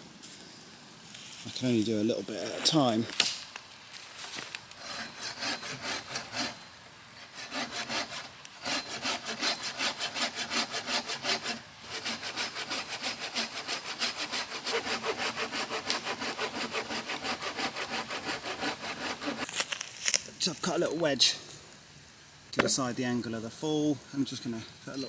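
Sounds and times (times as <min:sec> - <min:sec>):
handsaw cutting tree trunk: 0:04.7 - 0:06.6, 0:07.2 - 0:19.6.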